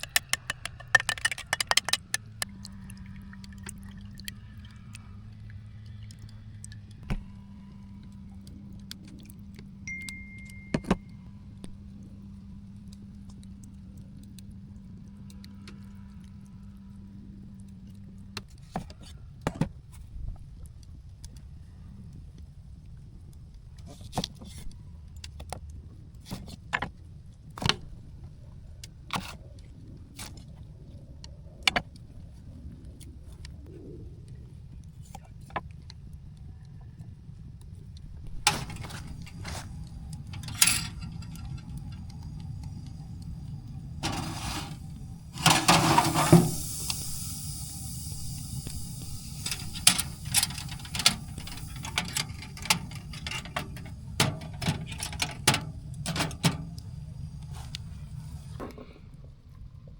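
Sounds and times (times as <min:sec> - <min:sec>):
sharp clicks and knocks: 0:00.0 - 0:02.5, 0:48.6 - 0:56.8
low steady rumble: 0:00.0 - 0:59.9.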